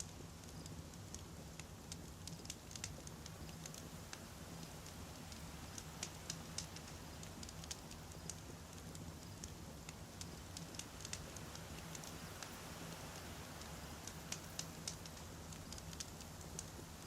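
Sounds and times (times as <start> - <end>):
low rumble of flames: 0.0 - 17.0.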